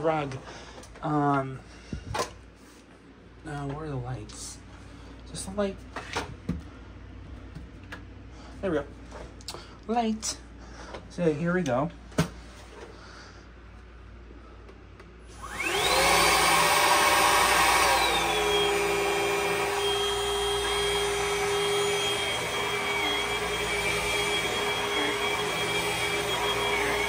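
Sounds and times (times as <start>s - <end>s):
vacuum motor whine: 15.2s - 27.0s.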